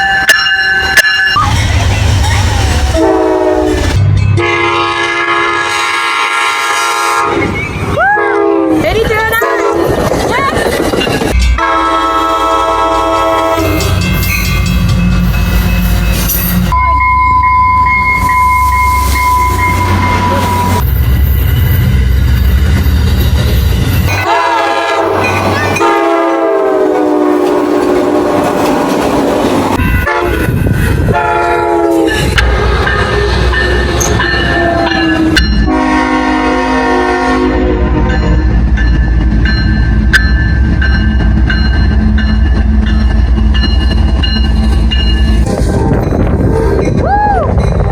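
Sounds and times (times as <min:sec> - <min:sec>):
train rumble and wheel clatter: 0:00.0 - 0:47.9
locomotive horn blasts: 0:03.0 - 0:07.5, 0:08.2 - 0:08.8, 0:09.4 - 0:09.9, 0:11.6 - 0:14.0, 0:24.2 - 0:28.4, 0:29.8 - 0:30.5, 0:31.1 - 0:33.4, 0:34.5 - 0:38.2.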